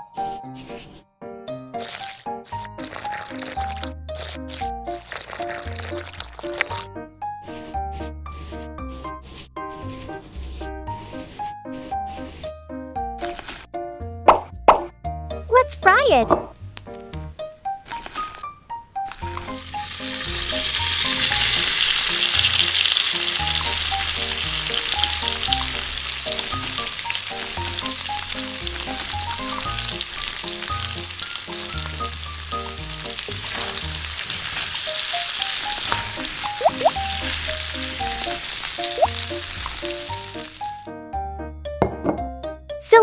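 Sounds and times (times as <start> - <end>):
light background music: 0.0 - 43.0
chicken sizzling in hot oil: 1.8 - 6.9, 19.1 - 40.9.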